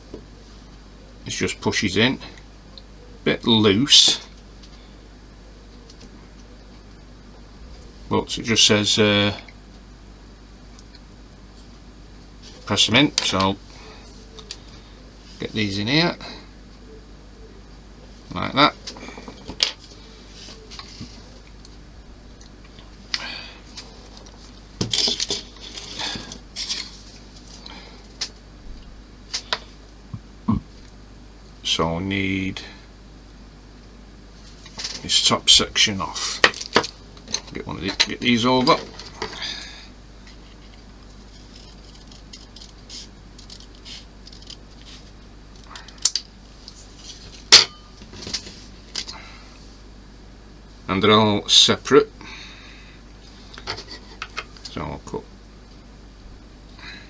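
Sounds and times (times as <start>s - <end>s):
small parts handling noise: 22.8s - 28.4s, 34.4s - 35.1s, 35.7s - 49.2s, 53.3s - 54.8s
plastic parts clicking and clattering: 36.4s - 39.4s.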